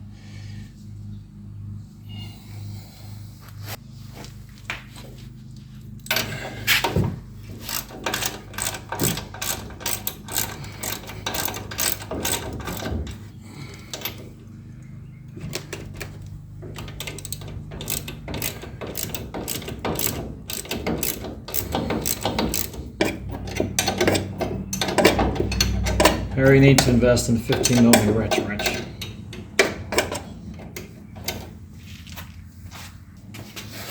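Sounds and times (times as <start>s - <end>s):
socket ratchet clicking: 7.6s - 14.2s, 15.5s - 31.5s.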